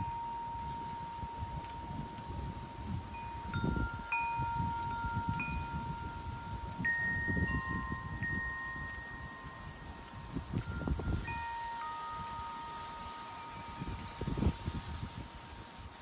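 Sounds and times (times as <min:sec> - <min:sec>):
wind chimes ringing: 0:00.0 - 0:16.0
wind rumble on microphone: 0:00.0 - 0:16.0.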